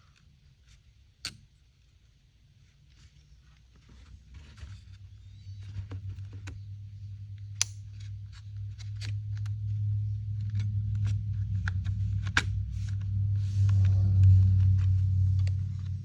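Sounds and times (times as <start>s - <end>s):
low steady hum: 0.0s - 16.0s
small sharp clicks and taps: 7.6s - 8.1s.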